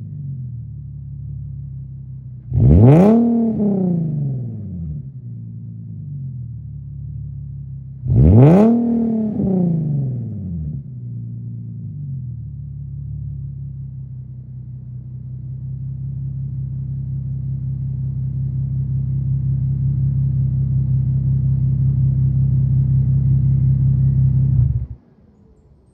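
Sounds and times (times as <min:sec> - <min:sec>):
car engine droning: 0:00.0 - 0:25.9.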